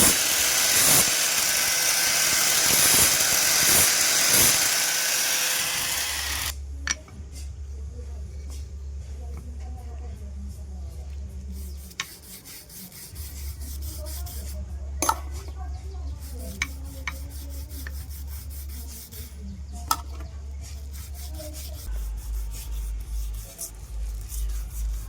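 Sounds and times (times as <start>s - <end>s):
hand file rasping on metal: 0.0s - 6.5s, 11.6s - 14.6s, 16.2s - 19.5s, 20.7s - 25.0s
steady low hum: 0.0s - 25.0s.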